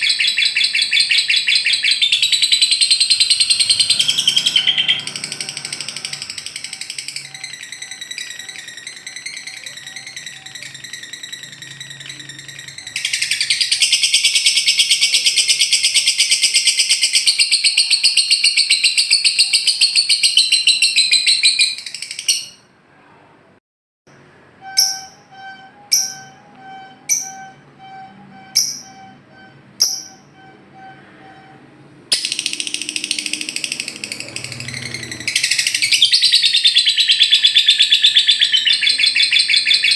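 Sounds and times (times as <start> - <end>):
lovebird chattering trill: 0.0 - 22.6, 29.8 - 30.9, 32.1 - 39.9
short sharp high chirps: 24.1 - 39.1.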